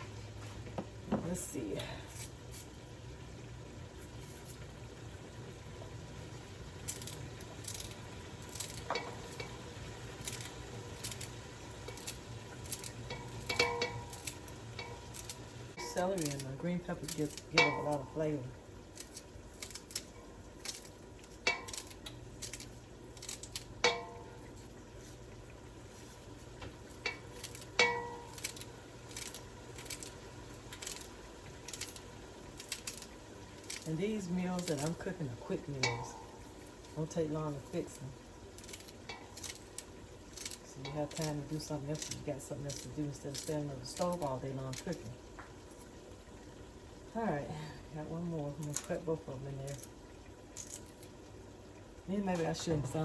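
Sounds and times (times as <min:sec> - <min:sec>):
knife chopping celery: 0:06.9 - 0:18.2, 0:18.9 - 0:23.7, 0:26.8 - 0:33.9, 0:38.6 - 0:44.9.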